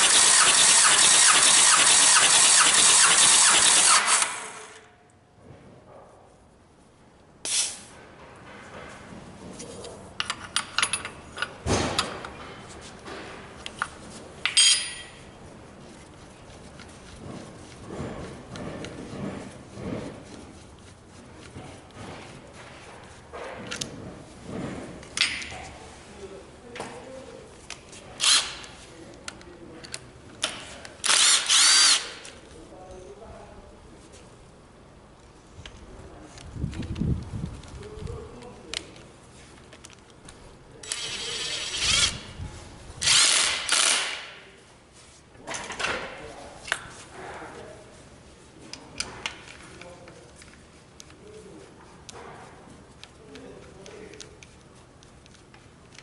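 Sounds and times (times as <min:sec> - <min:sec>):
power drill motor whine: 0:00.0 - 0:04.8, 0:31.1 - 0:32.1, 0:40.9 - 0:42.2, 0:43.0 - 0:44.1
metal tools clinking: 0:14.4 - 0:15.4.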